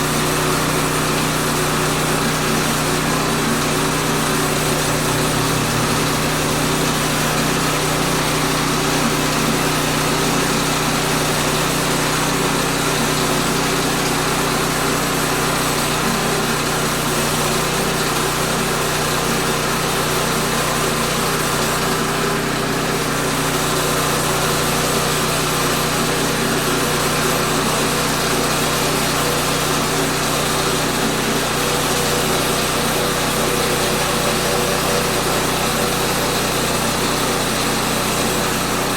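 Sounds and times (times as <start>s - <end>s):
small gas engine running steadily: 0.0s - 38.9s.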